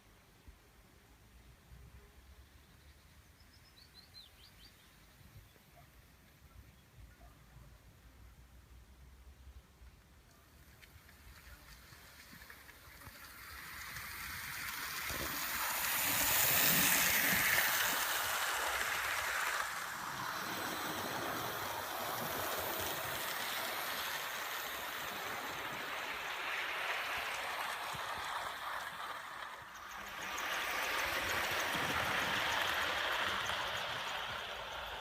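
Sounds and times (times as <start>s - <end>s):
model train wheels rattling on rails: 10.6s - 35.0s.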